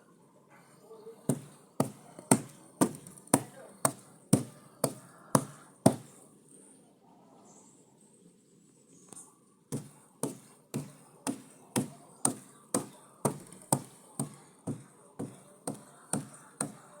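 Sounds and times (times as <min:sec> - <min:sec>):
hammer driving nails: 0:01.3 - 0:06.1, 0:09.8 - 0:17.0.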